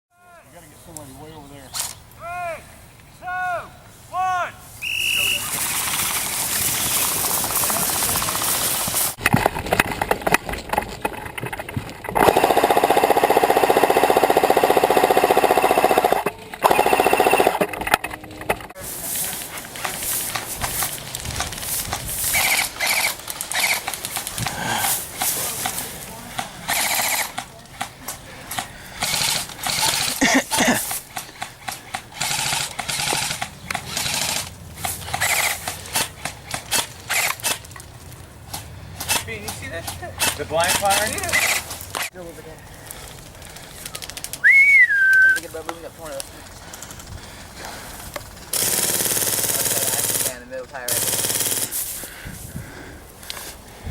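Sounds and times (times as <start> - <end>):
airsoft gun firing full auto: 12.2 - 18.0, 22.3 - 24.0, 26.6 - 27.4, 29.0 - 30.2, 31.7 - 37.7, 40.2 - 41.7, 48.5 - 51.8
gun clicks: 26.4 - 37.9.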